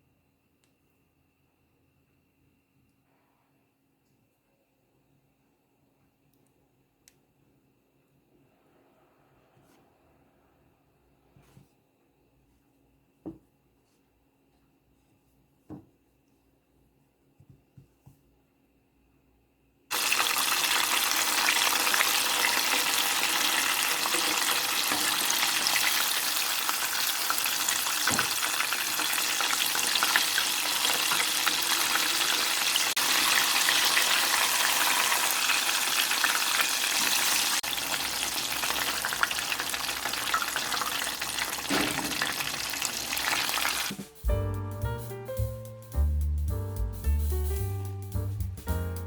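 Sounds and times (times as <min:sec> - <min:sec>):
chicken deep-frying in oil: 0:19.9 - 0:44.0.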